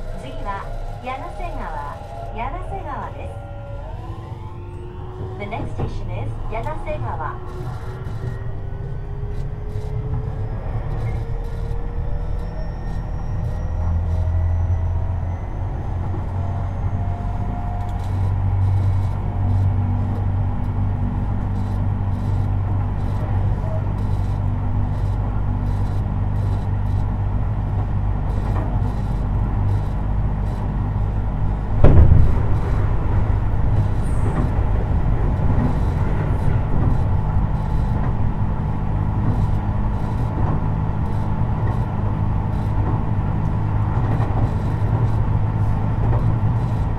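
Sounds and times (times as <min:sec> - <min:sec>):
traction motor whine: 0:00.0 - 0:46.9
train low rumble: 0:00.0 - 0:46.9
wheels thumping on track: 0:27.8 - 0:46.9.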